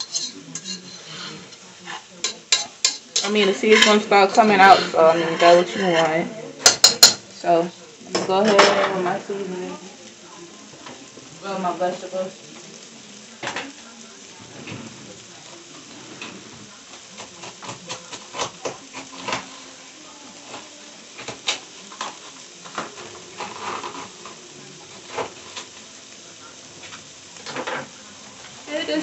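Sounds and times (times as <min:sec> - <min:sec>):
kitchenware clinking: 0:00.0 - 0:09.3
okra sizzling in a pot: 0:00.0 - 0:29.0.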